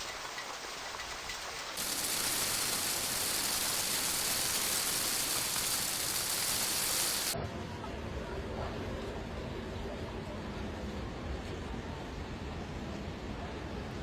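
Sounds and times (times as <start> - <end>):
heavy rain pouring: 0.0 - 7.4.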